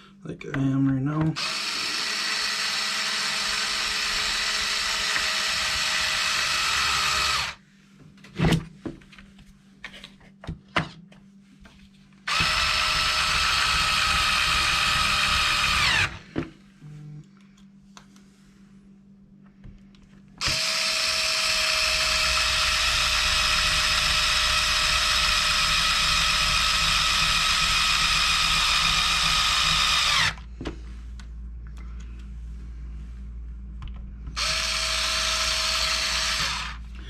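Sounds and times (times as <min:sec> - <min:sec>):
power screwdriver motor whine: 0:01.4 - 0:07.6, 0:12.3 - 0:16.2, 0:20.4 - 0:30.4, 0:34.4 - 0:36.8.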